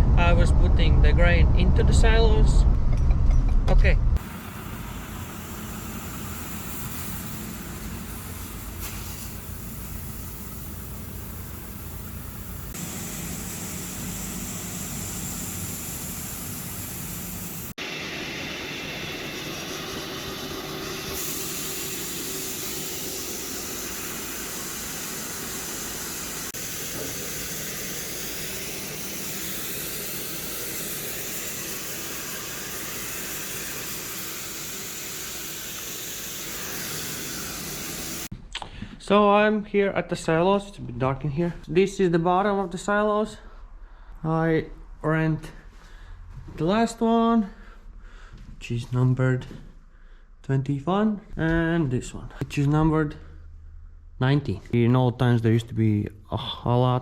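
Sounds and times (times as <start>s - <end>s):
hissing rush of grain: 4.2s - 38.3s
grain machinery running: 12.8s - 38.3s.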